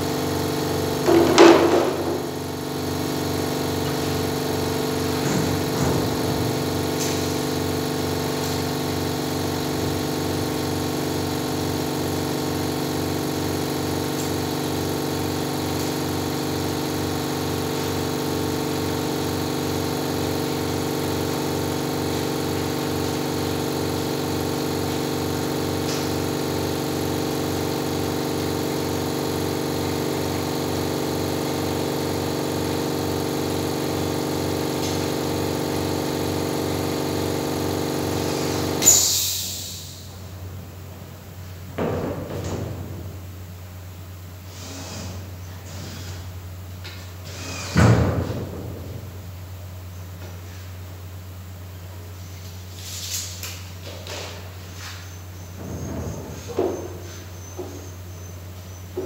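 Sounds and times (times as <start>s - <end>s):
machine motor humming: 0.0s - 38.8s.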